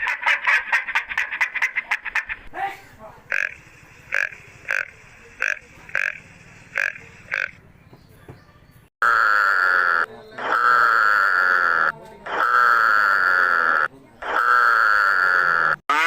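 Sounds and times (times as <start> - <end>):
animal calling loudly: 9.0 - 16.0.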